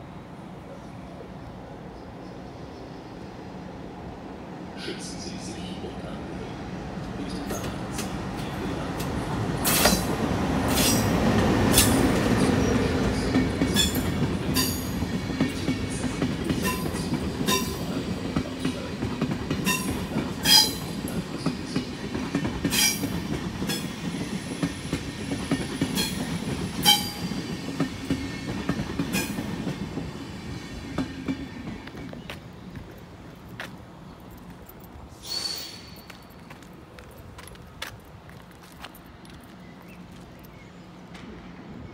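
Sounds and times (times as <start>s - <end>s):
wheels clacking over rail joints: 7.3s - 30.1s
wheel squeals: 35.2s - 36.3s.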